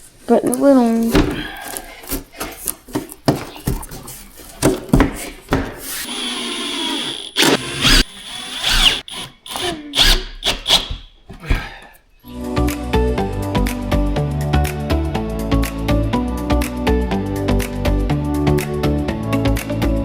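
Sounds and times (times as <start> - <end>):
knocks of wood and tools: 4.6 - 5.9
power drill driving screws: 5.9 - 11.1.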